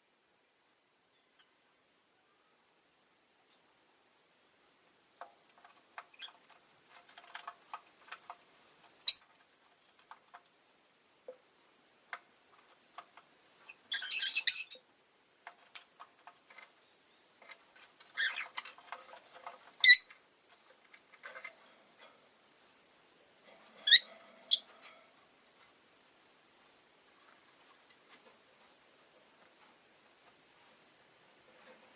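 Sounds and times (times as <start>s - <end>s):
faint clicks and taps: 5.1s - 13.8s, 15.4s - 22.3s, 27.1s - 31.9s
lovebirds chirping: 9.0s - 9.4s, 13.6s - 14.9s, 16.6s - 18.8s, 19.8s - 20.2s, 23.8s - 24.7s.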